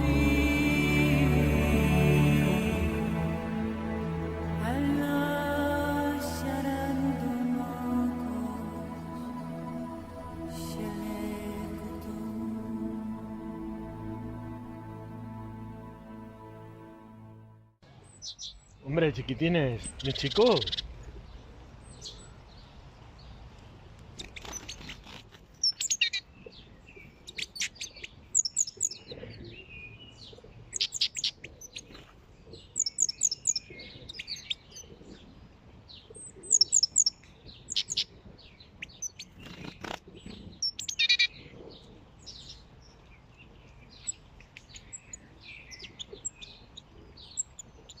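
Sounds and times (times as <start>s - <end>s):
small birds chirping: 24.2s - 48.0s.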